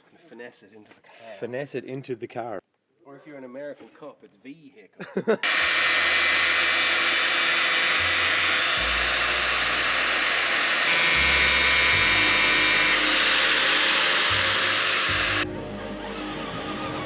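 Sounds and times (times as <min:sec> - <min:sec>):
power tool whining: 0:05.4 - 0:17.0.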